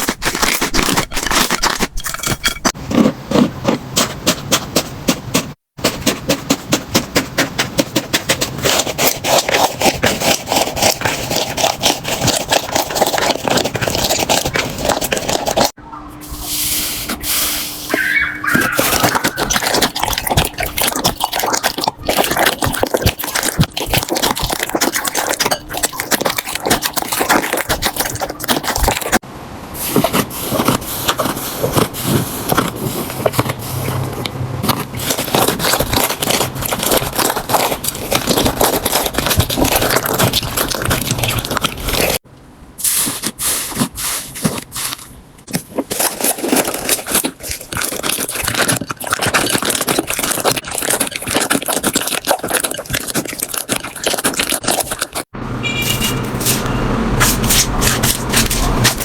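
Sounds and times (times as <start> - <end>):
slime crackling and popping: 34.6 - 42.2, 43.0 - 55.3.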